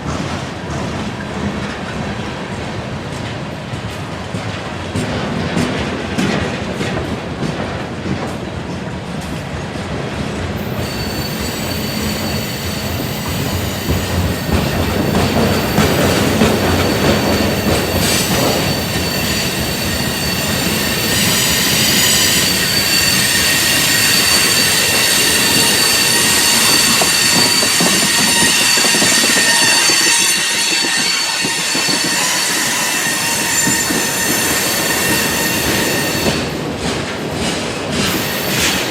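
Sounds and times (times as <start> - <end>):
train wheels clicking over rail joints: 0.0 - 38.9
steel wheel squeal: 10.6 - 36.6.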